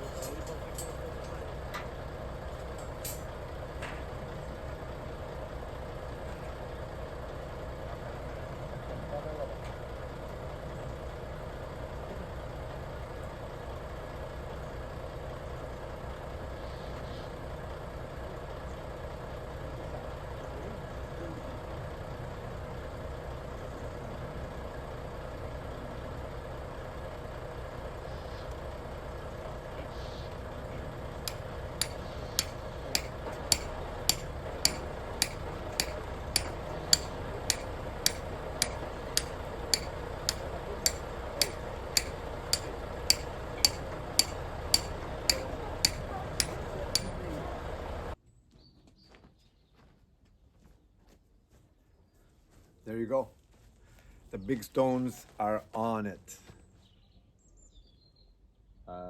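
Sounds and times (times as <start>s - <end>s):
crane engine running: 0.0s - 20.4s, 21.6s - 48.2s
sharp regular ticking: 31.3s - 47.3s.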